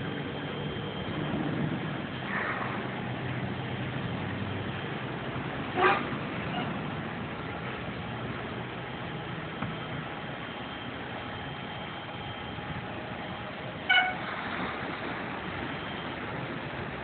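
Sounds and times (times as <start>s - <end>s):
traffic and car wash hiss: 0.0s - 17.0s
vehicle horn toot: 5.8s - 6.7s, 13.8s - 14.2s.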